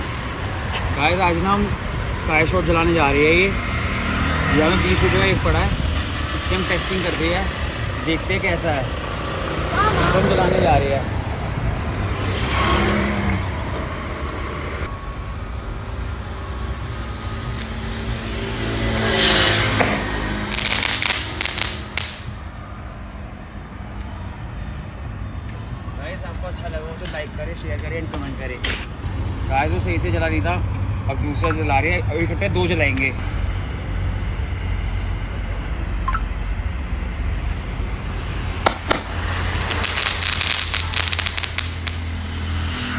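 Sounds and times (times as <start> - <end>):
traffic rumble: 0.0 - 42.9
firework hissing: 19.5 - 22.4, 38.6 - 42.4
firework crackling pops: 19.9 - 22.4, 38.6 - 42.3.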